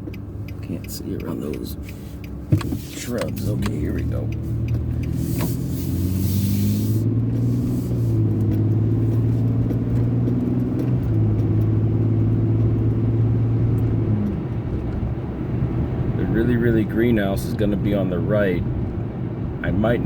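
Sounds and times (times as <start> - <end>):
car engine inside cabin: 0.0 - 20.0
road noise: 0.0 - 20.0
brief hiss: 5.2 - 7.0.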